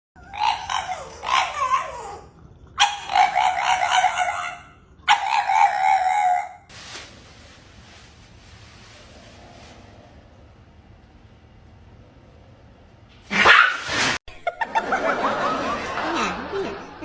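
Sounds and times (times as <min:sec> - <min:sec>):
dog howling: 0:00.2 - 0:06.7.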